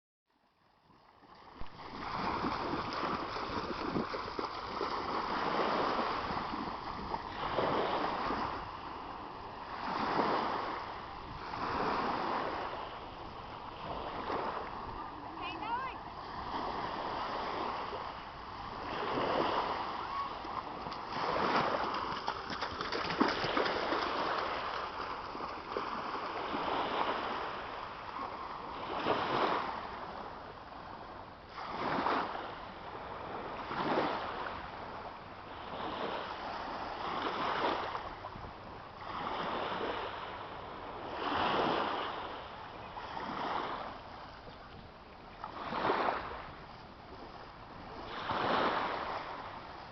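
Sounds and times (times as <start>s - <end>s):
water splashing in surges: 1.1s - 29.9s.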